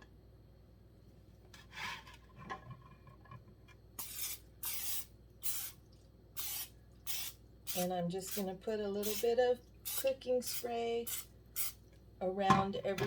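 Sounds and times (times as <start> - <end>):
aerosol spray hissing: 4.0 - 5.8, 6.4 - 11.8.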